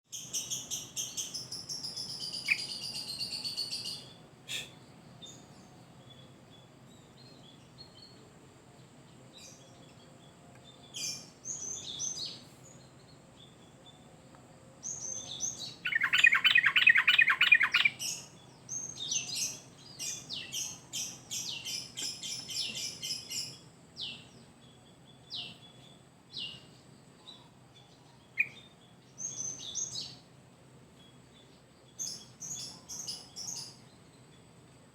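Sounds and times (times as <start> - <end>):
bulbul singing chattering phrases: 0.2 - 6.3, 14.9 - 23.6.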